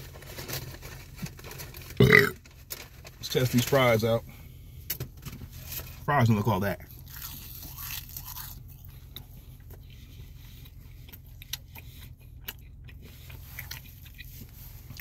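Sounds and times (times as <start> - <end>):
person chewing fries: 0.7 - 2.5, 6.8 - 15.0.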